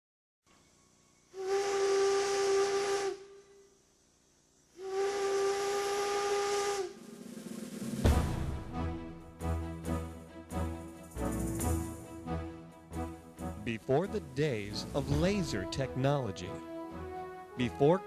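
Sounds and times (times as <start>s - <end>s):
steam whistle blowing: 1.3s - 3.8s, 4.8s - 7.1s
steam hissing: 1.3s - 4.0s, 4.6s - 8.2s.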